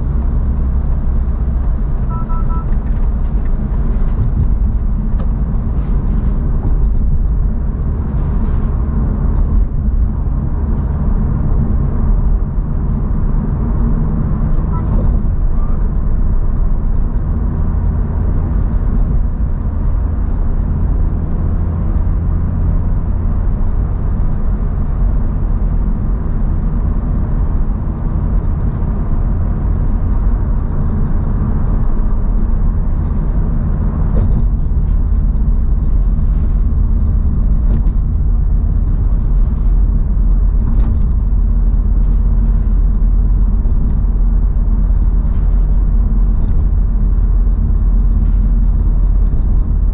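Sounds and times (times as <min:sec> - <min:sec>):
car road and engine rumble: 0:00.0 - 0:49.9.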